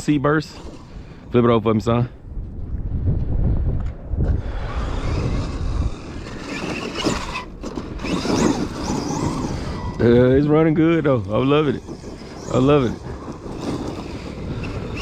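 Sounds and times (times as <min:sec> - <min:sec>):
electric rc truck motor surging: 0:00.4 - 0:01.1, 0:04.2 - 0:15.0
tyres on dirt and rock: 0:03.8 - 0:15.0.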